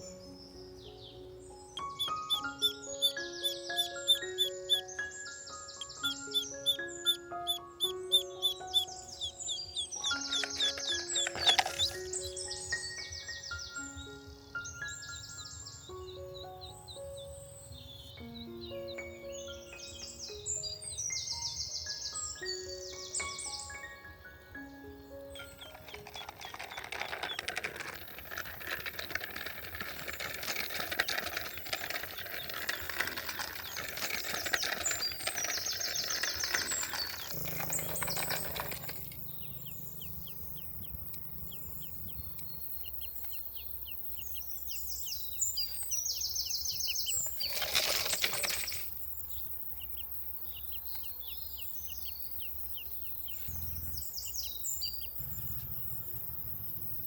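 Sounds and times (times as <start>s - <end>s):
high bird calls and chirps: 0.0s - 24.0s, 25.1s - 57.0s
rustling and clattering: 10.0s - 12.5s, 25.4s - 39.4s, 46.8s - 49.1s.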